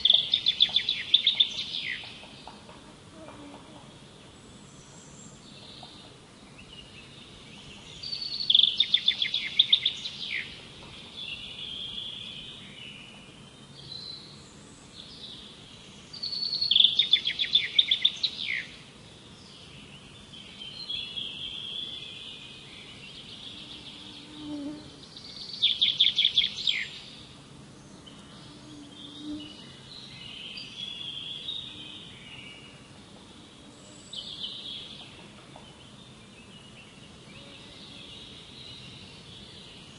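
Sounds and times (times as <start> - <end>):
soft bird chirps and twitters: 0.0 - 2.8, 4.2 - 32.9.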